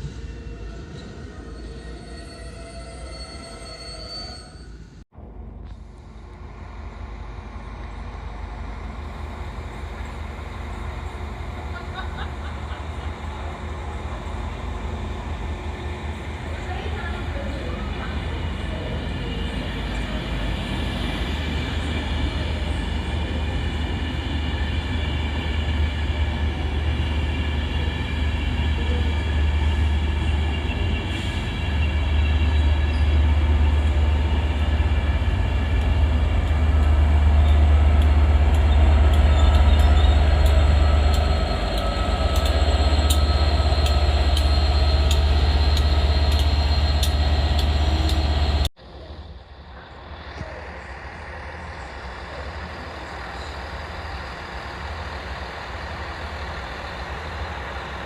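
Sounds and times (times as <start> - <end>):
diesel train rumbling past: 4.8 - 58.0
train wheels clicking: 30.8 - 48.7.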